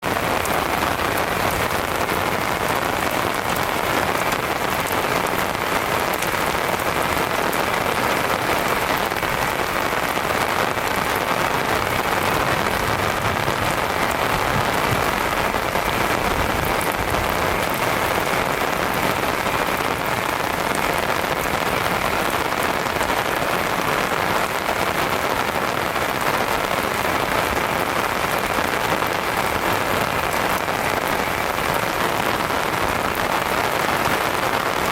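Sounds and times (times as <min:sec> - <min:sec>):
heavy rain pattering: 0:00.0 - 0:34.9.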